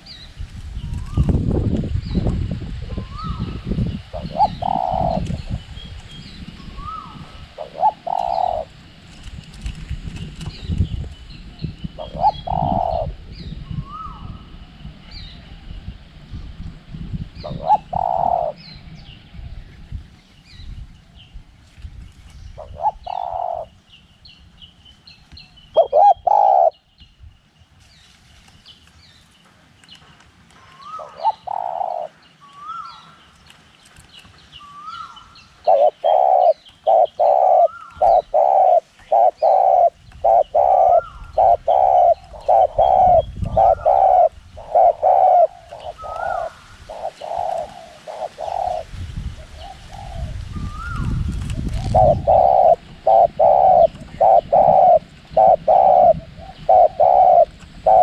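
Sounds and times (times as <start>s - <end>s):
small birds chirping: 0.0s - 16.6s, 17.3s - 58.0s
wind gusts rumbling: 0.0s - 27.5s, 34.5s - 58.0s
dove cooing: 2.9s - 5.6s, 6.6s - 9.0s, 11.9s - 14.4s, 17.4s - 18.6s, 22.6s - 23.8s, 25.8s - 26.8s, 30.8s - 33.1s, 34.6s - 58.0s.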